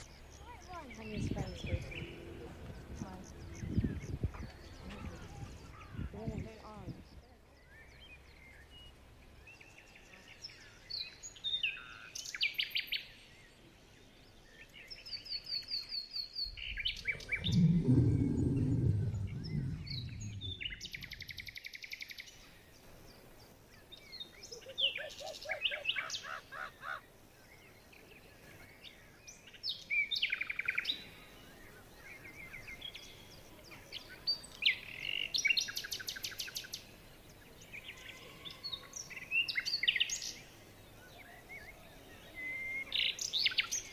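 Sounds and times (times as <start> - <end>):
small birds chirping: 0.0 - 43.9
low rumbling noise: 16.5 - 21.5.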